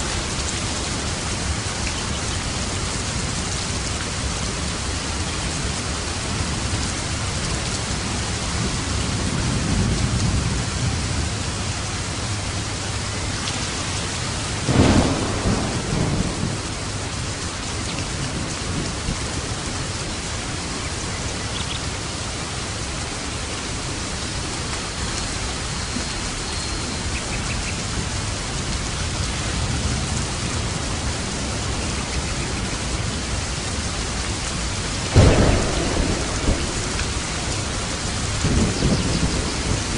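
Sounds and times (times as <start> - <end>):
steady rain: 0.0 - 39.9
thunder rumbling: 13.7 - 21.3, 27.9 - 39.9
sharp thunderclap: 14.6 - 17.3, 35.0 - 39.9.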